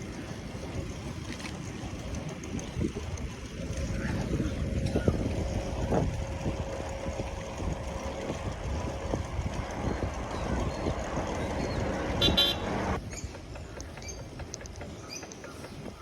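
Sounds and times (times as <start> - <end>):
wind rumbling on microphone: 0.0 - 16.0
road traffic: 3.5 - 16.0.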